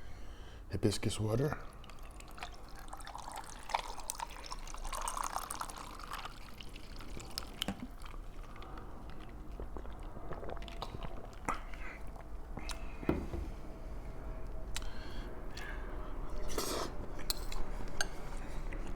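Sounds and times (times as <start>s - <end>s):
liquid pouring into a glass: 1.6s - 11.4s.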